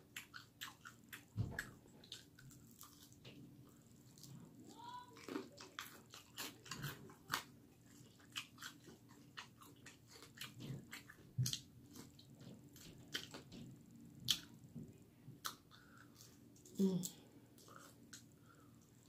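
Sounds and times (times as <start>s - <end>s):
person chewing crunchy chicken: 0.0s - 13.6s.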